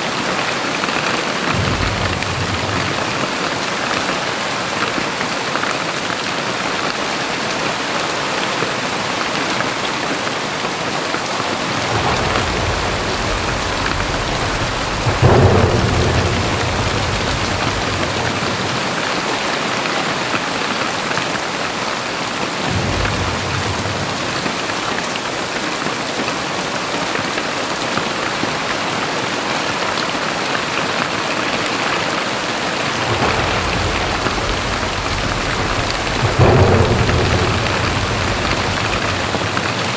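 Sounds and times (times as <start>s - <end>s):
heavy rain hissing: 1.0s - 4.4s, 11.2s - 20.1s, 31.2s - 39.9s
thunder rolling: 1.0s - 4.5s, 11.3s - 19.8s, 22.6s - 25.3s, 32.1s - 39.9s.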